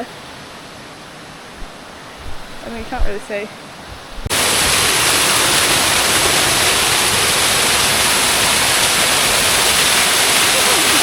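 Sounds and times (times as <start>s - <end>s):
waterfall rushing: 4.3s - 11.0s.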